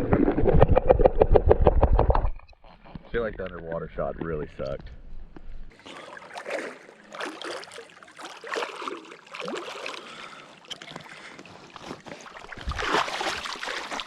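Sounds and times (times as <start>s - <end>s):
water sloshing and splashing: 5.7s - 14.0s.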